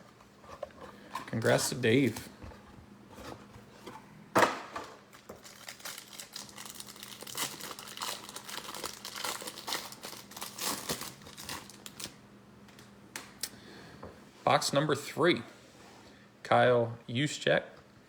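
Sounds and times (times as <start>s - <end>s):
packaging crinkling and tearing: 5.0s - 12.2s.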